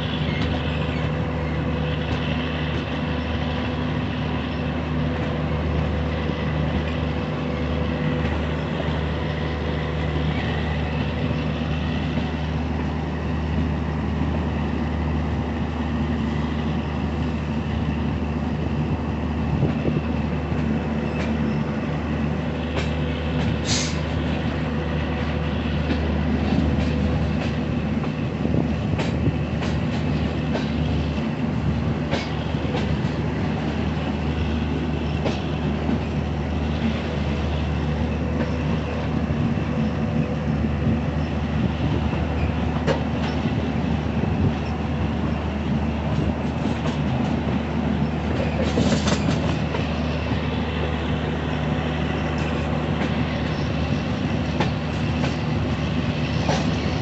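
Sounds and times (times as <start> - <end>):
train rumble and hum: 0.0 - 57.0
wheels clicking over rail joints: 22.6 - 34.4, 35.0 - 40.1, 41.9 - 50.7.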